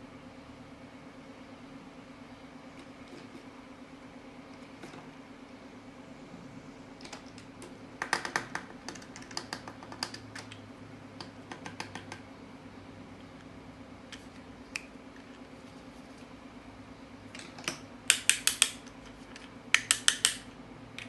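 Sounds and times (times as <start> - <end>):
steady low hum: 0.0 - 21.0
small sharp clicks and taps: 11.2 - 12.2, 17.4 - 20.5.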